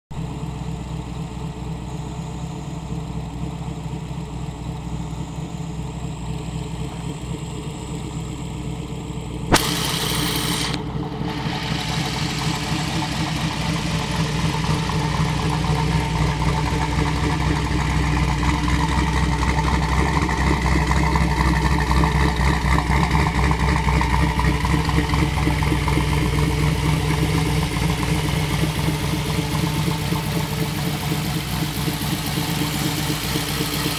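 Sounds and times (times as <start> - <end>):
car engine idling: 0.1 - 33.9
sharp click: 9.5 - 10.8
short burst of hiss: 9.5 - 10.8.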